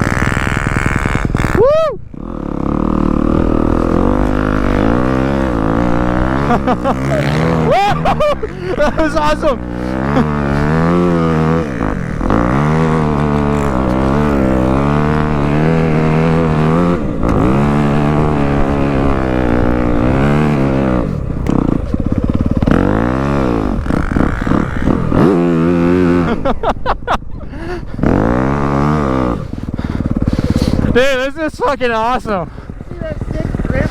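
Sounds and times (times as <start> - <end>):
dirt bike engine revving: 0.0 - 33.9.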